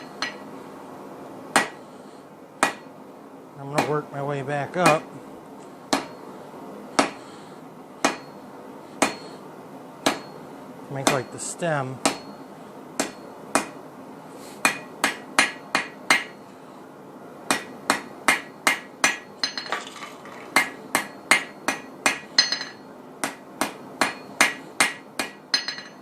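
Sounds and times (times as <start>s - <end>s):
hammer striking steel on anvil: 0.0s - 0.4s, 1.5s - 1.8s, 2.6s - 2.9s, 8.0s - 8.4s, 9.0s - 9.3s, 10.0s - 10.4s, 12.0s - 12.4s, 13.0s - 13.8s, 14.6s - 16.4s, 17.5s - 19.7s, 20.6s - 26.0s.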